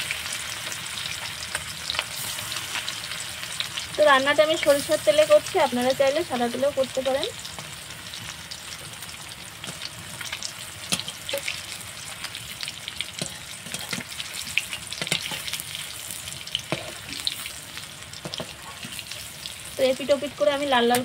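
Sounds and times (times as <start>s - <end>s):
food sizzling in hot oil: 0.0s - 21.0s
metal spatula turning food: 4.5s - 21.0s.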